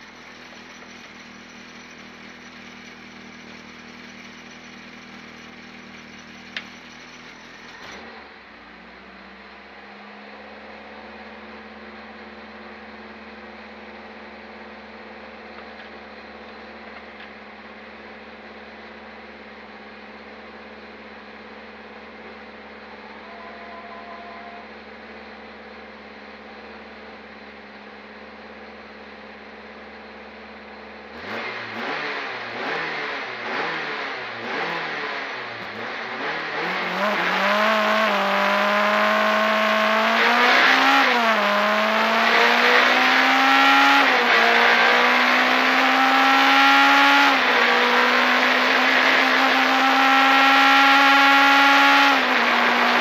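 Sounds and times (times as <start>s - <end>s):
car engine idling: 0.0s - 31.3s
car engine accelerating hard: 30.9s - 53.0s
engine revving in quick blips: 31.1s - 53.0s.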